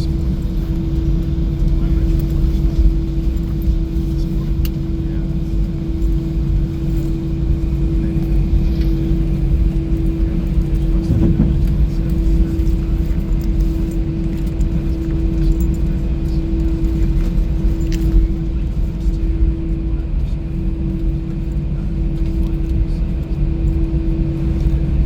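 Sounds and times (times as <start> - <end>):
aircraft cabin rumble: 0.0 - 25.0.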